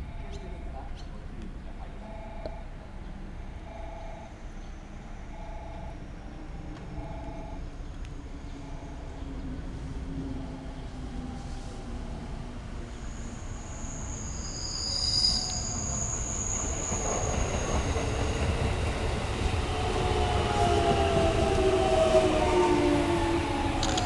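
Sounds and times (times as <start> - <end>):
train rumble: 0.0 - 24.0
train wheel squeal: 12.9 - 22.5.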